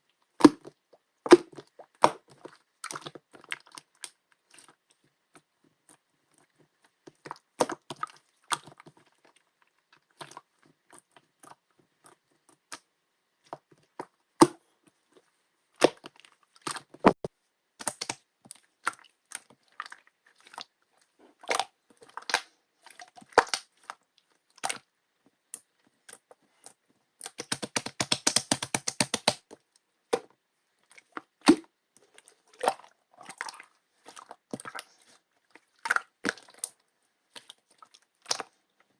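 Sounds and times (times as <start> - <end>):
sticky slime clicks and pops: 17.8 - 18.2, 27.3 - 29.4.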